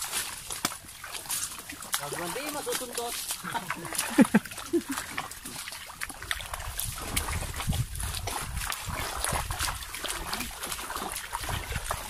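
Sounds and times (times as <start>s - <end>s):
feet squelching in mud: 0.0s - 12.0s.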